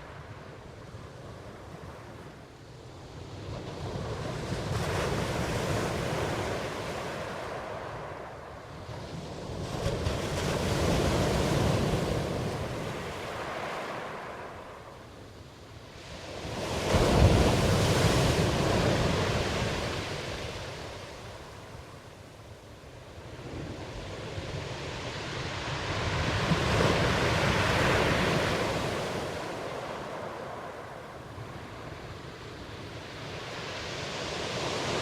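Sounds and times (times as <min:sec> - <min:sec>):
ocean waves surging: 0:16.3 - 0:22.2, 0:23.1 - 0:35.0.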